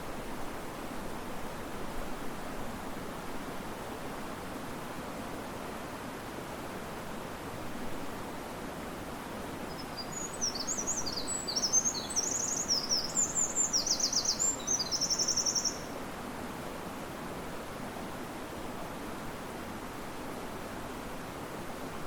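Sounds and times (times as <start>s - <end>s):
river water rushing: 0.0s - 22.0s
wind in trees: 0.0s - 22.0s
songbird singing trills: 9.7s - 15.9s.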